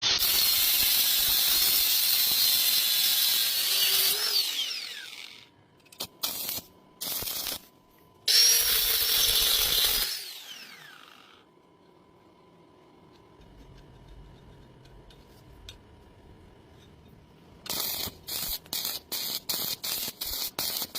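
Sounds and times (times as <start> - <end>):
power tool whining and grinding: 0.0 - 5.5, 8.3 - 11.4.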